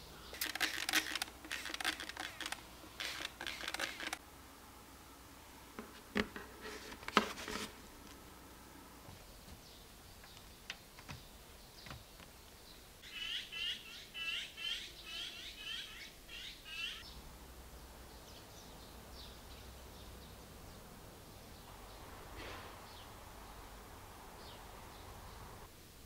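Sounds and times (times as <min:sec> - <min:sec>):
songbird chirping: 0:09.2 - 0:25.7
faint bird calls: 0:13.0 - 0:17.2.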